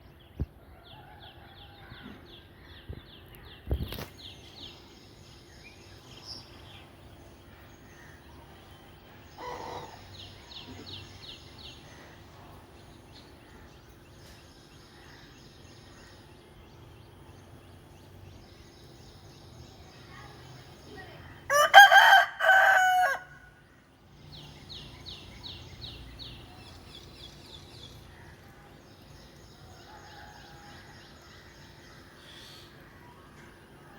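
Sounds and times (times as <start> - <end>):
rooster crowing: 21.5 - 23.5.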